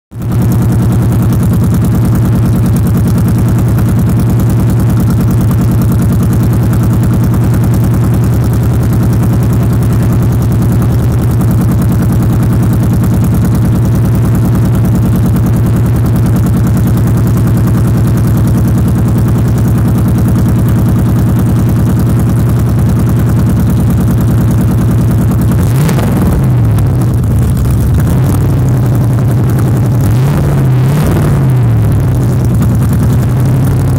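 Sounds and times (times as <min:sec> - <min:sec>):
car engine idling and revving: 0:00.1 - 0:33.9.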